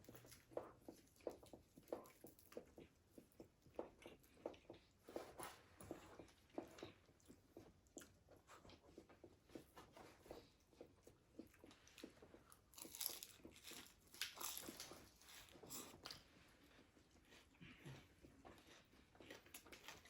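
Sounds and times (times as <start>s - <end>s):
chewing crispy fried food: 10.2s - 20.0s.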